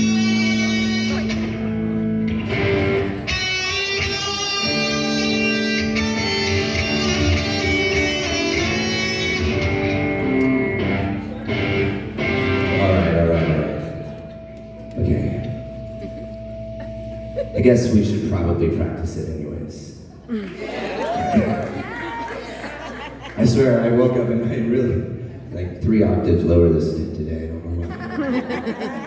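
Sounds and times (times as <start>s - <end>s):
guitar strumming chords: 0.0s - 19.0s.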